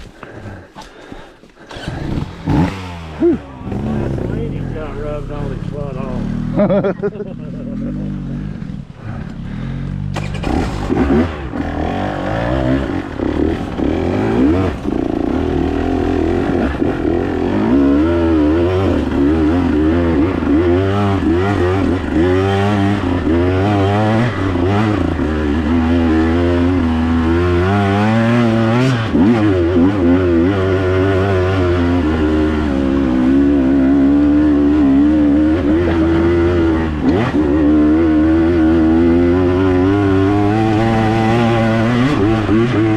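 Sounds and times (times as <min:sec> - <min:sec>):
dirt bike engine revving: 0:01.6 - 0:42.9.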